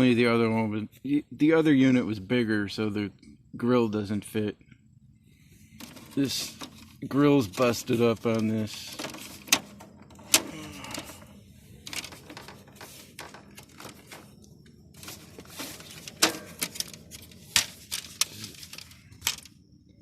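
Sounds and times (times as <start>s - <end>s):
light plastic rattling: 5.8s - 19.6s.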